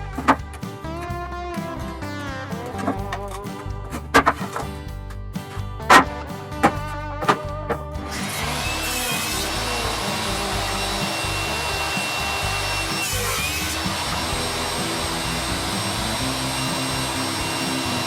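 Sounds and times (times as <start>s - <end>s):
background music: 0.0s - 18.0s
power tool running on wood: 8.1s - 18.0s.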